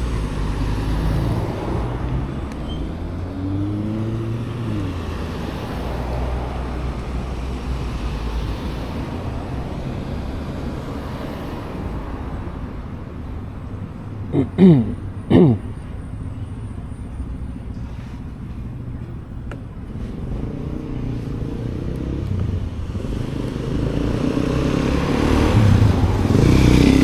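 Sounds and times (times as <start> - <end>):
vehicle engine tone: 0.0 - 10.9, 12.9 - 27.0
rumble of road traffic: 0.0 - 27.0.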